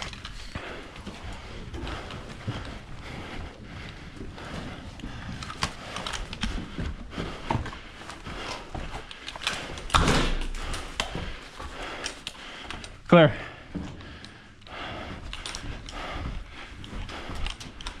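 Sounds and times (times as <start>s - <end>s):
gear clattering and rustling: 0.0s - 13.0s, 14.0s - 18.0s
footsteps indoors: 0.0s - 18.0s
scuffing clatter: 13.4s - 18.0s.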